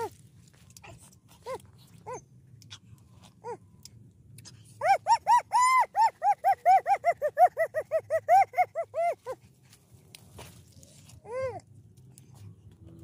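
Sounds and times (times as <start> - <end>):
animal yelping: 0.9 - 2.3, 4.8 - 9.5.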